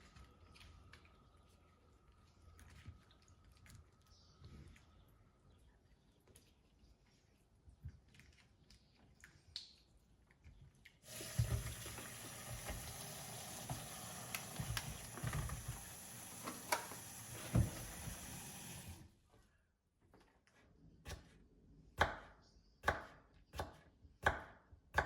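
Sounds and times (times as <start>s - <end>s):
tap water running into sink: 11.0s - 19.0s.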